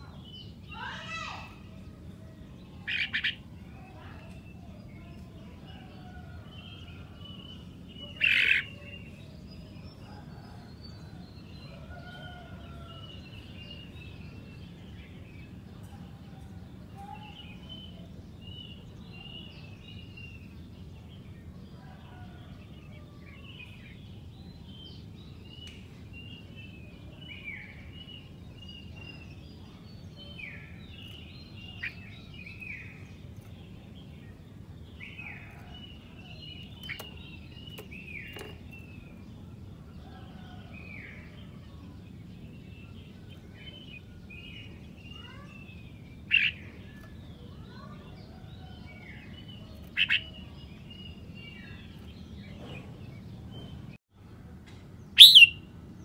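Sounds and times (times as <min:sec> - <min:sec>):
birds chirping and warbling: 0:00.0 - 0:54.0, 0:54.7 - 0:56.0
loud sharp bird calls: 0:02.7 - 0:04.1, 0:08.0 - 0:09.0, 0:46.2 - 0:46.8, 0:49.9 - 0:50.5, 0:55.2 - 0:55.7.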